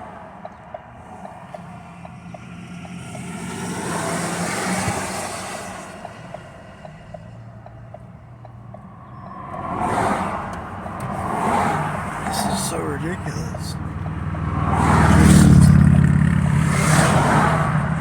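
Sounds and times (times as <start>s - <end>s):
car engine running at low revs: 10.3s - 18.0s.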